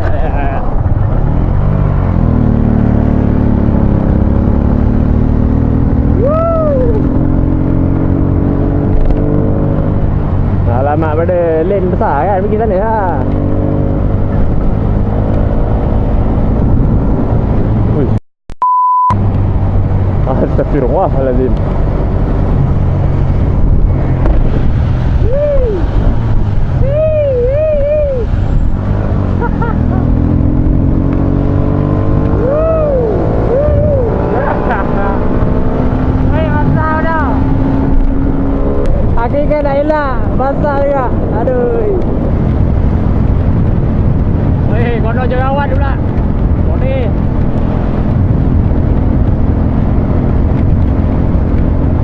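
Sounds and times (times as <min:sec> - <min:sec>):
wind and road noise: 0:00.0 - 0:18.2, 0:19.0 - 0:52.0
rising and falling tone: 0:01.1 - 0:10.2, 0:21.8 - 0:39.2.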